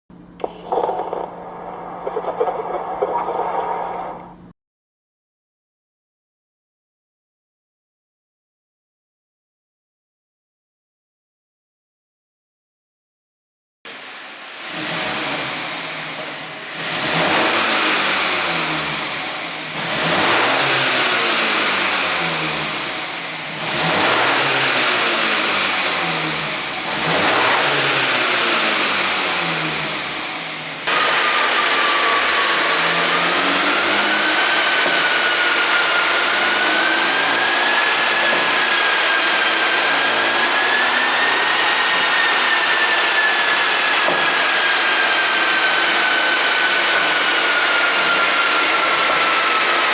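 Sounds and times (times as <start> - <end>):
car engine revving with exhaust pops: 14.7 - 42.6
loud rushing noise with high whine: 30.1 - 49.9.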